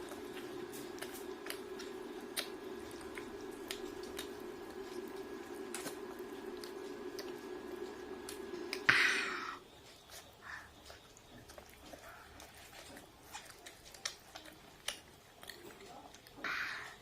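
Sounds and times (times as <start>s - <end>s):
chewing and mouth clicks: 0.0s - 8.9s, 9.8s - 17.0s
low hum: 0.0s - 9.7s.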